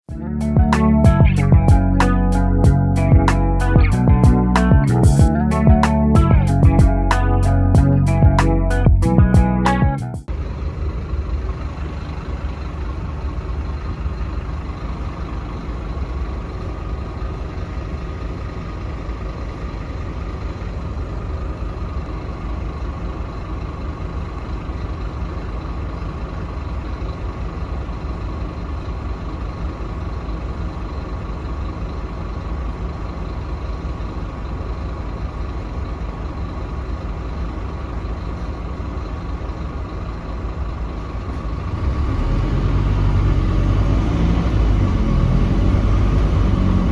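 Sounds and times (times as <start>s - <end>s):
bus diesel engine rumbling: 0.0s - 46.9s
faint steady whine: 10.3s - 41.4s.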